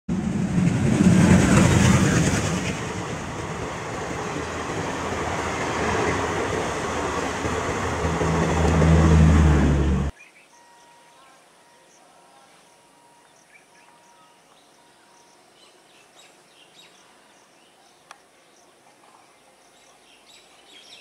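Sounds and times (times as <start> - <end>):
train wheel-and-rail rushing: 0.1 - 10.1.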